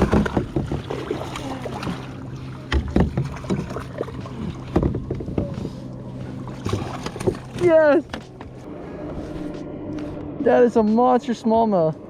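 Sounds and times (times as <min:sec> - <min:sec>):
knocks and thumps on kayak: 0:00.0 - 0:05.9, 0:06.6 - 0:08.6
low hum: 0:00.0 - 0:12.0.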